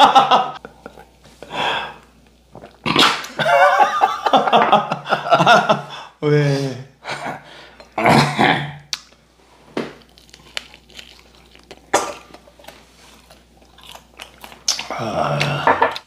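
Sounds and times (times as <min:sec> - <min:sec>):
chewing crunchy fried chicken: 0:09.9 - 0:16.0.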